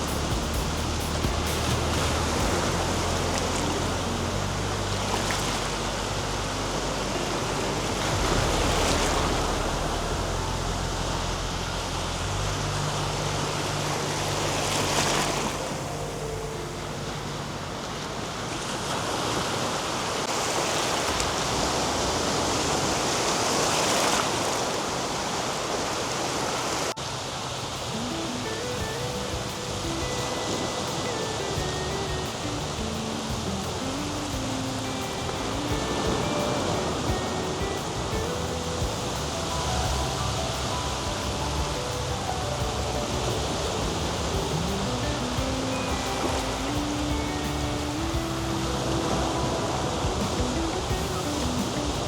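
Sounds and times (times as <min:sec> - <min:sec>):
soft background music: 0:00.0 - 0:18.8, 0:27.6 - 0:52.0
sea waves washing onto beach: 0:00.0 - 0:52.0.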